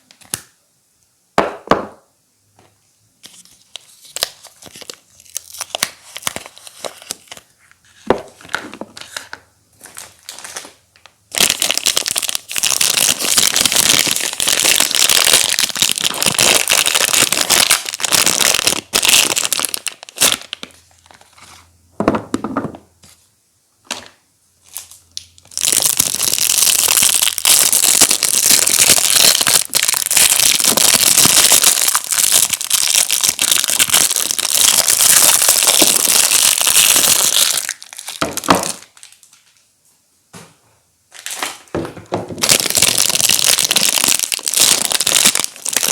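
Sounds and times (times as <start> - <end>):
packaging tearing and crinkling: 3.2 - 7.5, 8.4 - 21.6, 24.7 - 39.6, 41.2 - 41.7, 42.4 - 45.9.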